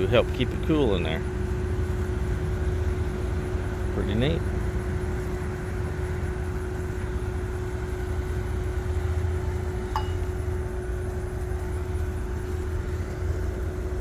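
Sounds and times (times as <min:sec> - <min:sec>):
air-conditioning unit humming: 0:00.0 - 0:14.0
brief metal clink: 0:10.0 - 0:10.4.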